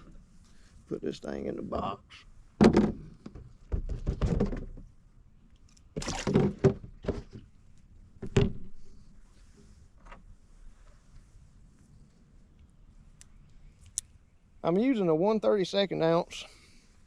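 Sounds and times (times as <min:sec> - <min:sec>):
hollow thunks in fish box: 0:02.6 - 0:04.8, 0:06.0 - 0:07.5.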